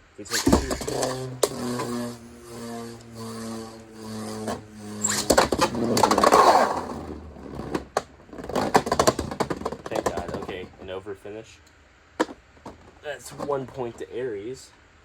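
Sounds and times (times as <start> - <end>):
spinning tops whirring: 0.0 - 10.6
spinning tops clashing and scraping: 0.3 - 7.4.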